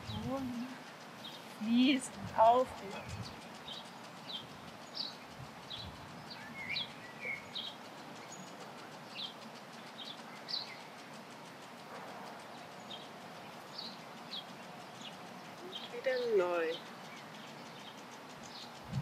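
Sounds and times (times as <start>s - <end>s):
faint steady background noise: 0.0s - 19.0s
small bird chirping: 0.0s - 19.0s.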